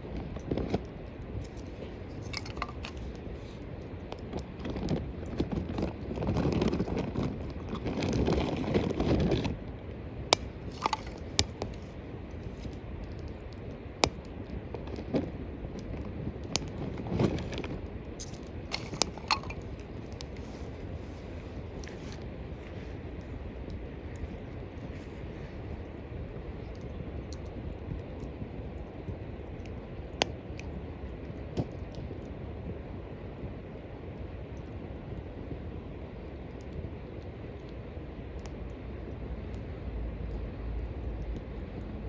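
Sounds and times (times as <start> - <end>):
crunching and rustling: 0.0 - 28.5
fire popping: 0.0 - 42.0
wood fire crackling: 0.0 - 42.0.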